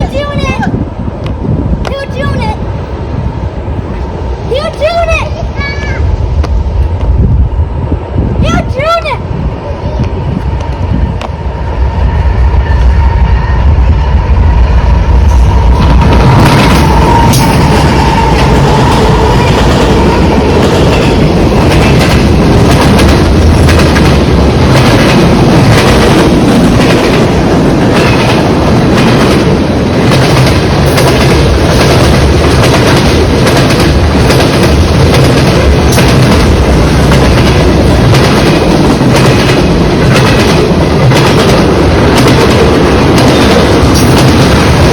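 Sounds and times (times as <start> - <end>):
diesel locomotive rumble: 0.0 - 44.9
train wheels clacking over rails: 15.2 - 44.9.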